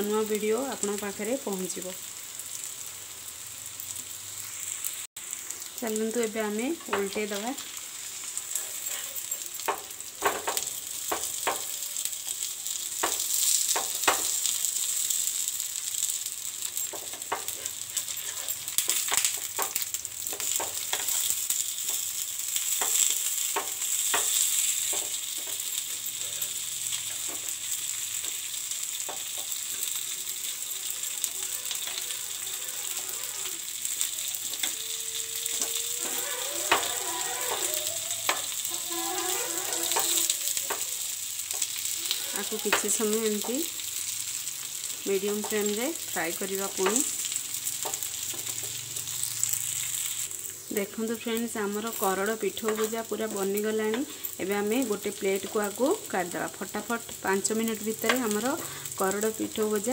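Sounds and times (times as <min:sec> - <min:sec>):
fritters sizzling in oil: 0:00.0 - 0:59.9
steel spatula clicking and scraping: 0:08.2 - 0:43.5.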